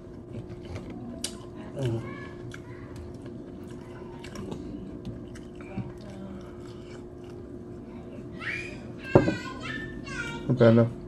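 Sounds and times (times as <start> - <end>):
person chewing food: 0.0 - 8.3
steady low hum: 0.0 - 11.0.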